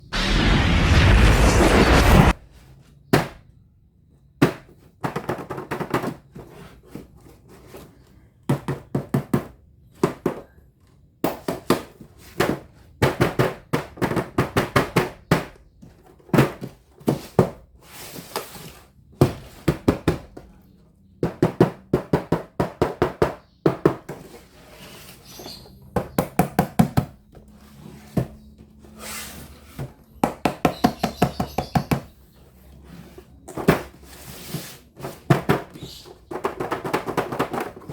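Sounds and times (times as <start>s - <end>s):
plastic toys knocking and clicking: 4.4s - 7.0s, 8.4s - 17.6s, 21.2s - 24.3s, 35.0s - 37.9s.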